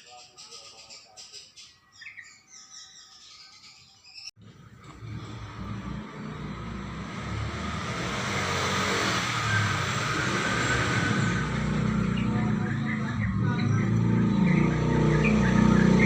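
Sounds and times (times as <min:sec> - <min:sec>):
motor vehicle passing: 0:04.4 - 0:16.0.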